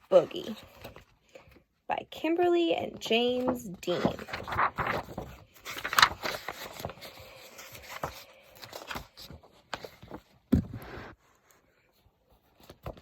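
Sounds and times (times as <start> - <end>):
paper rustling and scraping: 3.1 - 13.0.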